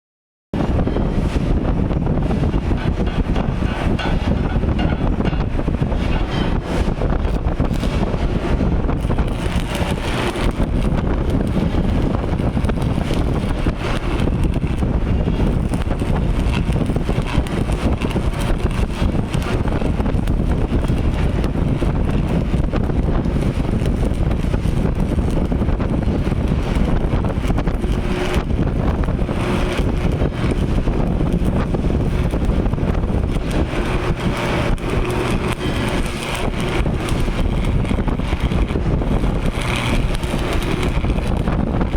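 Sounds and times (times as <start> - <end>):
arc welder crackling: 0.6 - 41.9.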